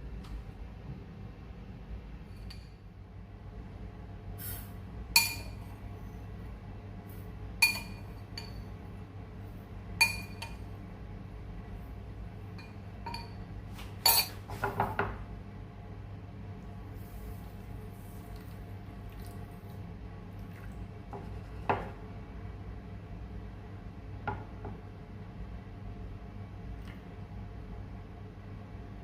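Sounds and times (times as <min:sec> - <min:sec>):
dishes clinking: 0:05.2 - 0:05.6, 0:07.6 - 0:08.7, 0:10.0 - 0:10.6, 0:12.6 - 0:13.4, 0:14.0 - 0:15.1.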